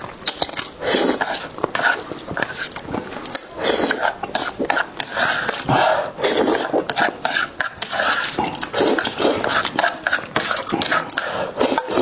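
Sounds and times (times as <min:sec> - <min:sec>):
wet chewing and mouth-smacking: 0:00.0 - 0:12.0.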